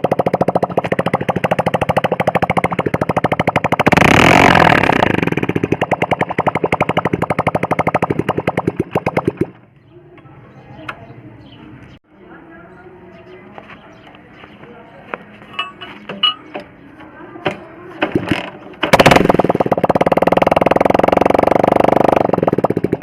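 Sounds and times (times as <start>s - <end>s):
two-stroke motorcycle engine: 0.0s - 9.7s, 17.4s - 23.0s.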